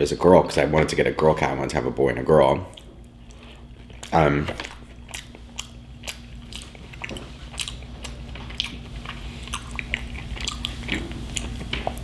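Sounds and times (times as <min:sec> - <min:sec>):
chewing with wet clicks and crunches: 0:02.7 - 0:12.0.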